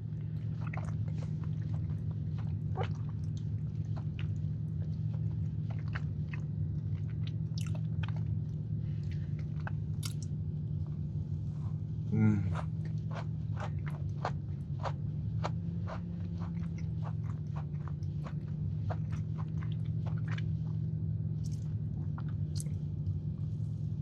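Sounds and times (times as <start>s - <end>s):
steady low hum: 0.0s - 24.0s
man chewing a cookie: 0.1s - 10.4s, 12.2s - 20.8s
wet mouth clicks and smacks: 10.0s - 10.3s, 21.4s - 22.8s.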